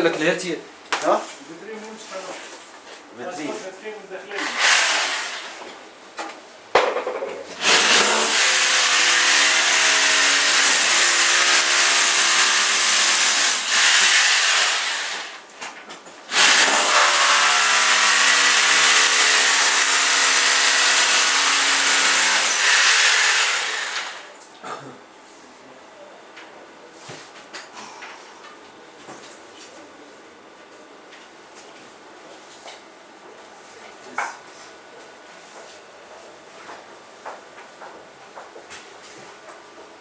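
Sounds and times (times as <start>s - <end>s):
power tool running with hiss: 4.4s - 5.7s, 7.6s - 15.5s, 16.3s - 24.4s.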